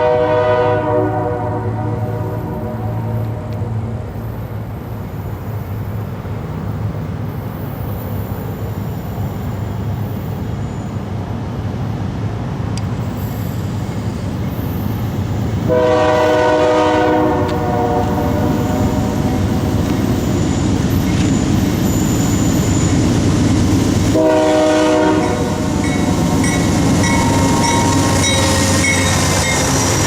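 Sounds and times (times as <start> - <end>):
locomotive horn chord: 0.0 - 3.8, 15.7 - 19.3, 24.1 - 25.8
train rumbling: 0.0 - 30.0.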